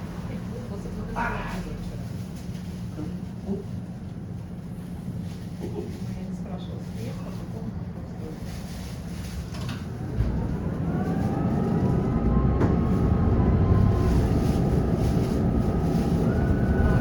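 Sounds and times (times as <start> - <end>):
wheels rumbling on rails: 0.0 - 17.0
tram motor whine: 9.8 - 17.0.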